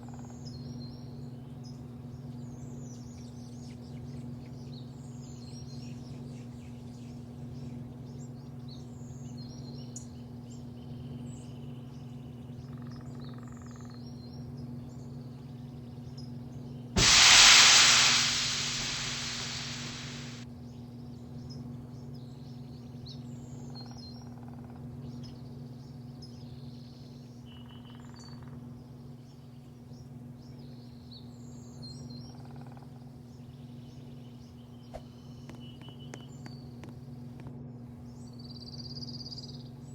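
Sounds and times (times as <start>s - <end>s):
loud hiss: 17.0s - 20.4s
steady low hum: 17.0s - 20.4s.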